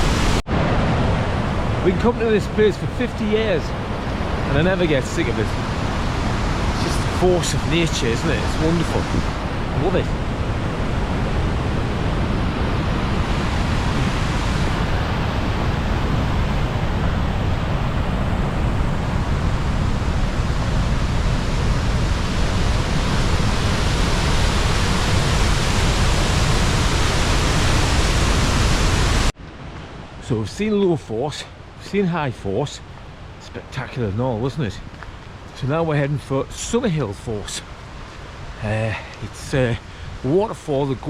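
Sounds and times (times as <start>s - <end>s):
waterfall rushing: 0.0s - 29.3s.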